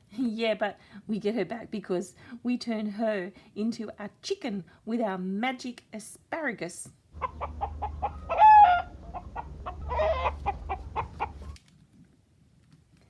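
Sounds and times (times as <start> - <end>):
chicken clucking: 7.2 - 11.6
chicken squawk: 7.2 - 11.6
low steady hum: 7.2 - 11.6.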